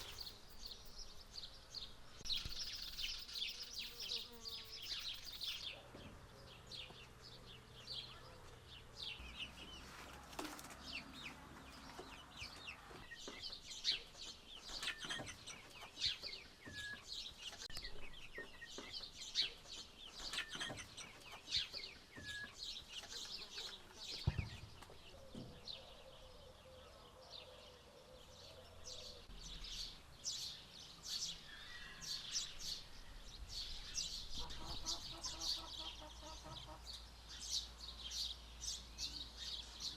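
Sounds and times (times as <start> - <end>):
small birds chirping: 0.0 - 39.9
chickens clucking: 34.3 - 37.1.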